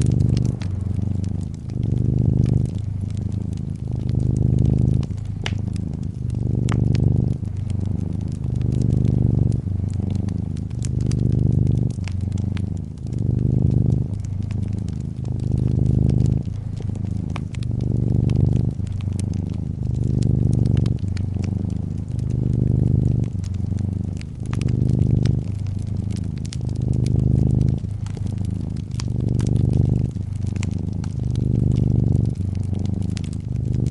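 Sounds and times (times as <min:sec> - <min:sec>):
cat purring: 0:00.0 - 0:33.9
fireplace crackling: 0:00.0 - 0:33.9.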